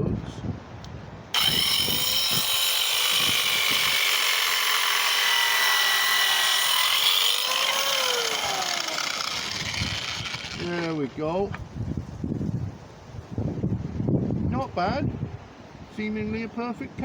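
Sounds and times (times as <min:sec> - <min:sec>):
circular saw cutting timber: 0:01.4 - 0:11.4.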